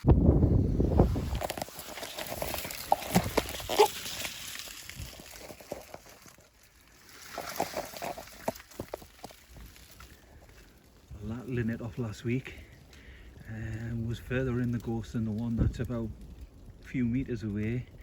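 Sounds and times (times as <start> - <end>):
undergrowth rustling underfoot: 0.0 - 12.8
twigs snapping: 1.2 - 10.8.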